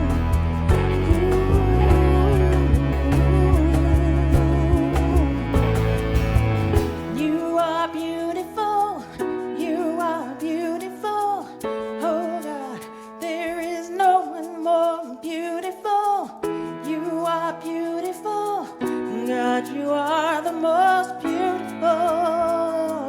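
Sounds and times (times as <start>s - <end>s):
plucked string chords: 0.0s - 8.8s
sliding wavering melody line: 0.0s - 8.9s.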